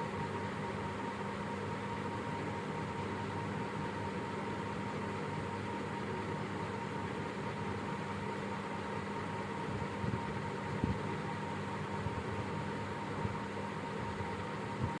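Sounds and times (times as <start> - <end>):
steady hum and hiss: 0.0 - 15.0.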